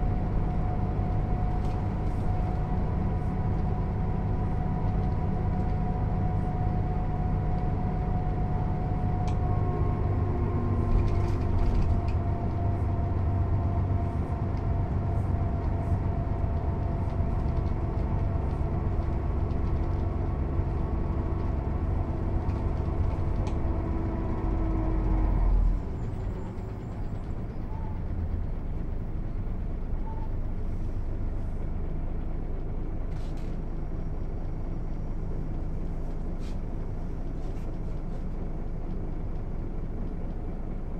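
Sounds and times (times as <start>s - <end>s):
diesel bus engine droning: 0.0s - 40.9s.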